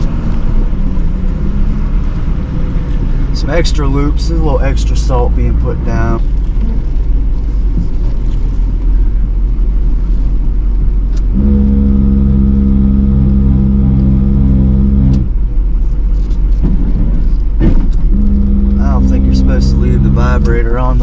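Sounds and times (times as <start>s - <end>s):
diesel truck running: 0.0s - 21.0s
hopper vibrator buzzing: 11.3s - 15.6s, 18.0s - 21.0s.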